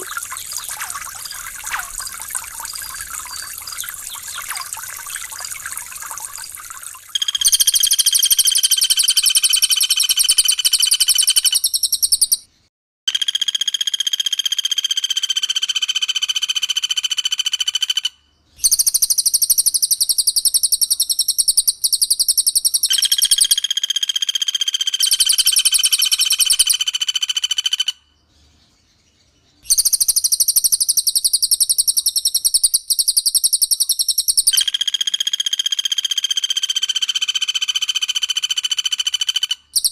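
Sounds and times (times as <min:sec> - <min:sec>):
water trickling: 0:00.0 - 0:07.5
rapid high bird call: 0:00.0 - 0:07.6.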